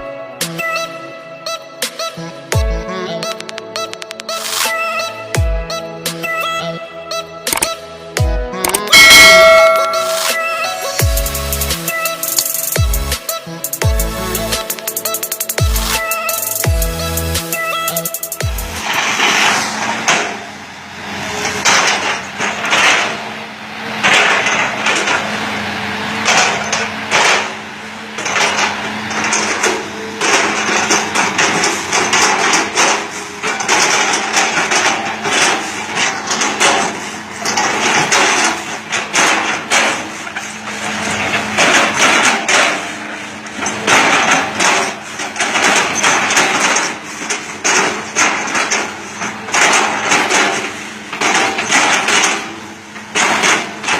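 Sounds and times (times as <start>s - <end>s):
excavator engine at high revs: 11.0s - 53.9s.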